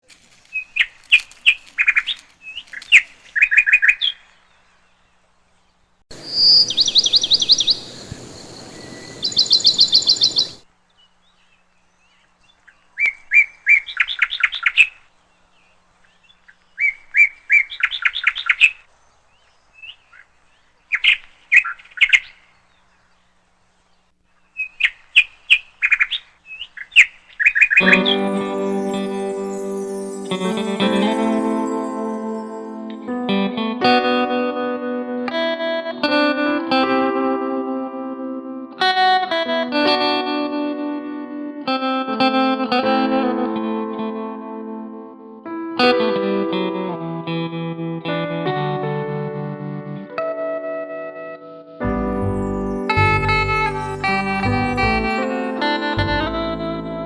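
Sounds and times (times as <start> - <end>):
bird chirping: 0.3 - 32.7.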